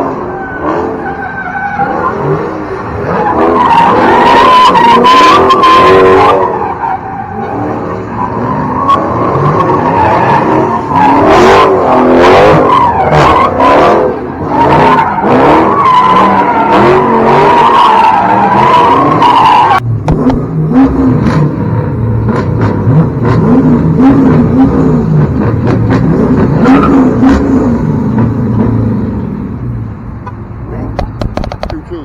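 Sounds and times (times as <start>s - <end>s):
tyres squealing: 0.0s - 19.8s
car engine revving: 0.0s - 32.0s.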